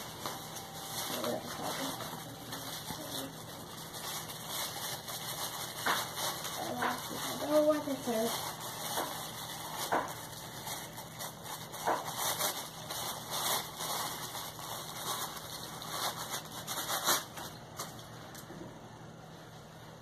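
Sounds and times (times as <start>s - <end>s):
rustling of packaging: 0.0s - 18.5s.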